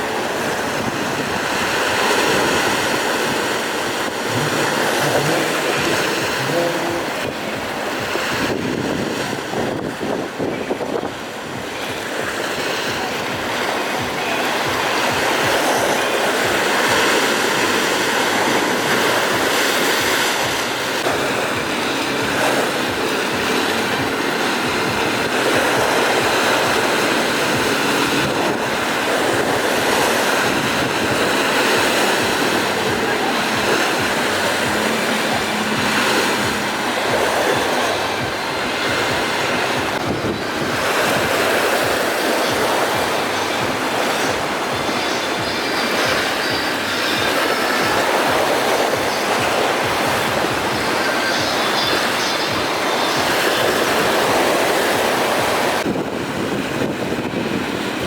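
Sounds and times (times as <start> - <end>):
waves breaking: 0.0 - 58.0
wind buffeting microphone: 0.0 - 58.0
wind rushing: 0.0 - 58.0.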